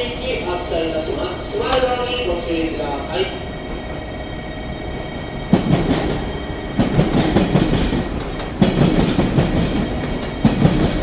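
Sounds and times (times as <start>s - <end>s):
train wheels clacking over rail joints: 5.4s - 11.0s.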